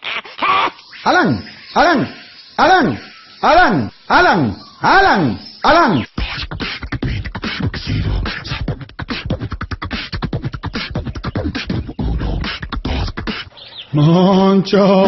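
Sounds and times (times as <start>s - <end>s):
beatboxing vocal percussion: 3.6s - 15.0s.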